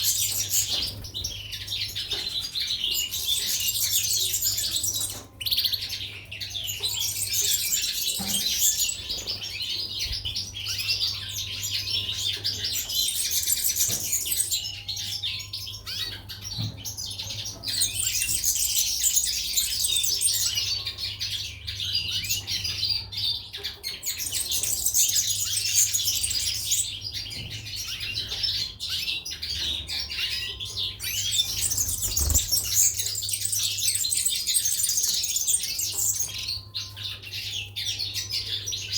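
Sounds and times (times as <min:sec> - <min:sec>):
songbirds chirping and twittering: 0:00.0 - 0:38.9.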